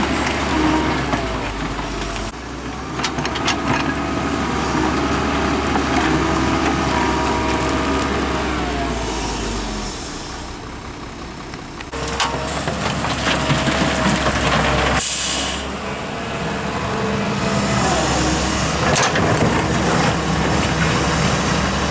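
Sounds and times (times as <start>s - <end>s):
heavy machinery diesel engines: 0.0s - 21.9s
short hiss: 15.0s - 15.6s.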